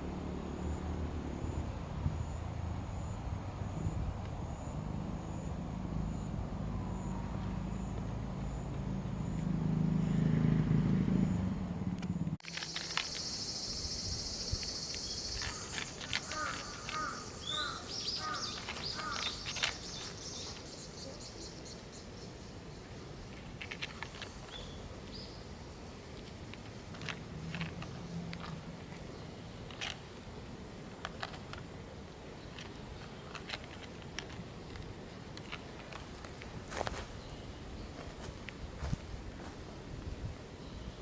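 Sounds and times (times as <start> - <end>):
scattered ticks: 12.0 - 20.9, 26.1 - 28.7
steady high hiss: 12.4 - 26.9.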